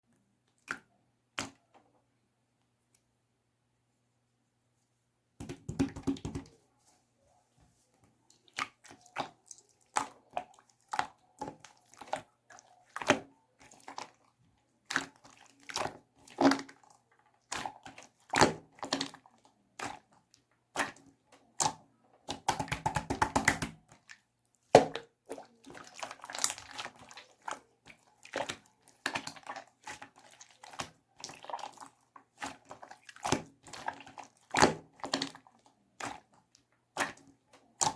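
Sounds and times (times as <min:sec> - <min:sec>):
slime squished by hand: 0:20.7 - 0:37.9.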